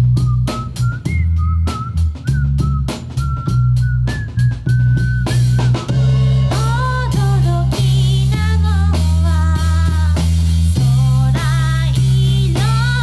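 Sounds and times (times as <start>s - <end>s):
drum kit: 0.0s - 13.0s
heavy steady bass: 0.0s - 13.0s
person singing: 6.5s - 13.0s.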